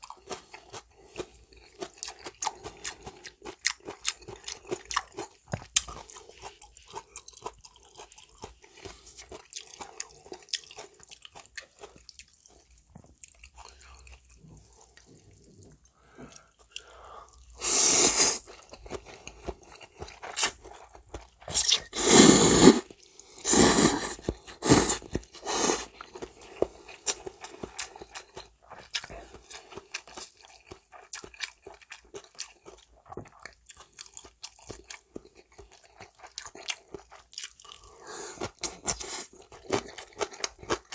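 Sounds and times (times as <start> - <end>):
chewing with small crunches: 0.0 - 17.7, 18.3 - 22.0, 22.8 - 40.9
loud noodle slurps: 17.6 - 18.5, 21.5 - 25.9.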